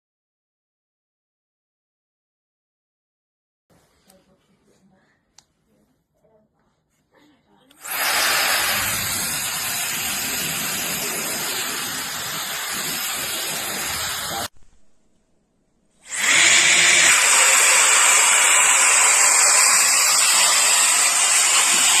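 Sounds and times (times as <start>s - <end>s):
electric air duster running: 7.8s - 14.5s, 16.1s - 22.0s.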